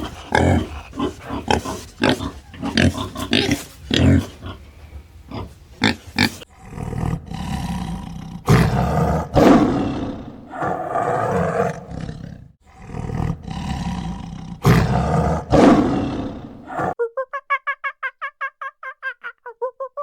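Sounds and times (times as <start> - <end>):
lion roaring: 0.0 - 17.0.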